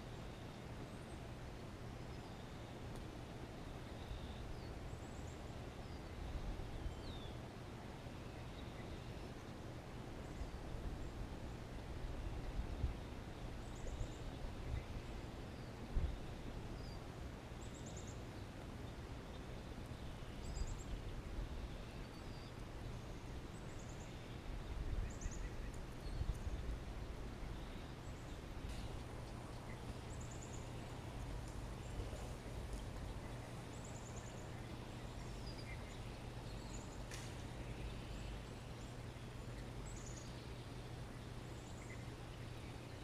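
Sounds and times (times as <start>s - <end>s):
birds chirping and trilling: 13.0s - 43.0s.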